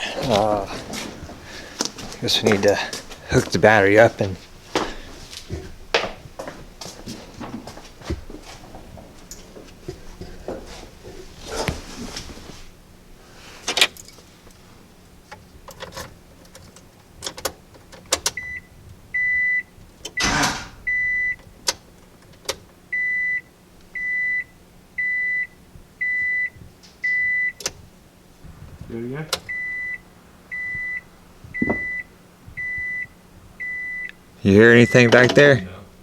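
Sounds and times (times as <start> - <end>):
handling clicks and knocks: 15.3 - 18.4
high short electronic warning beeps: 20.2 - 21.4, 34.7 - 35.3.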